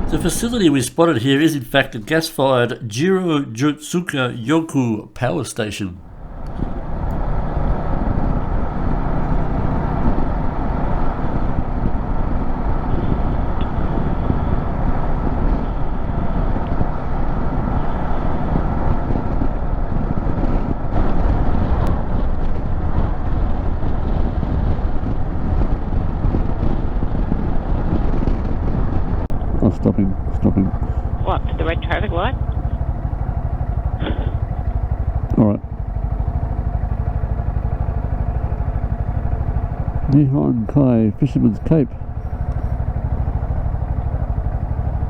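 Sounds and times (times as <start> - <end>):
motorcycle engine: 0.0 - 2.1, 6.0 - 45.0
road noise: 0.0 - 45.0.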